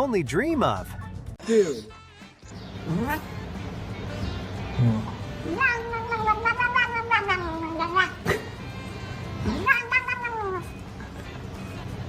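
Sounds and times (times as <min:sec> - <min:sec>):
cat yowling: 0:02.8 - 0:03.4, 0:05.0 - 0:08.6, 0:09.4 - 0:10.8.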